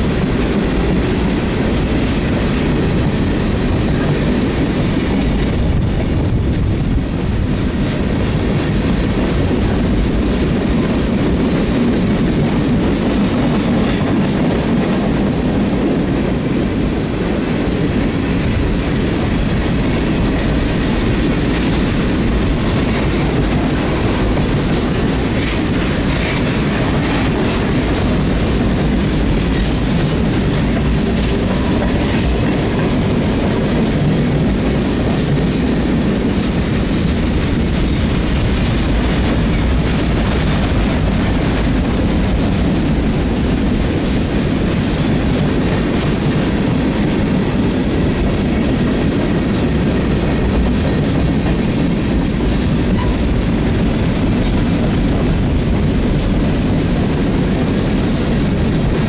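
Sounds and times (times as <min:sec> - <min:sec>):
freight train wheels on rails: 0:00.0 - 0:59.0.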